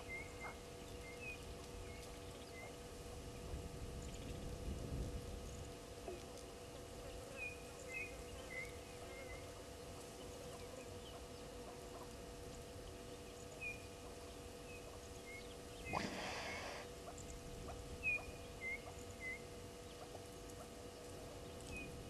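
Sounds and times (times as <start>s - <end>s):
low outdoor hum: 0.0s - 22.0s
faint bird chirps: 13.2s - 17.4s, 18.0s - 20.1s.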